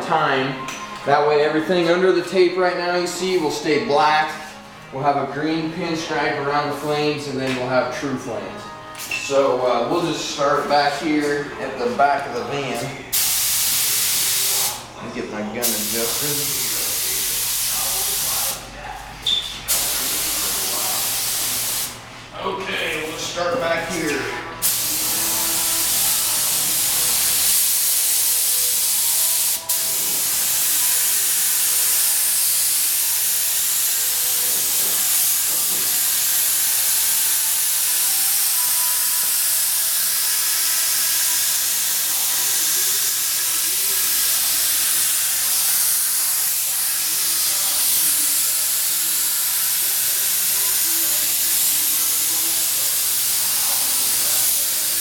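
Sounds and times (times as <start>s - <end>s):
paint spray gun hissing: 13.1s - 14.9s, 15.6s - 18.6s, 19.7s - 22.0s, 24.6s - 55.0s.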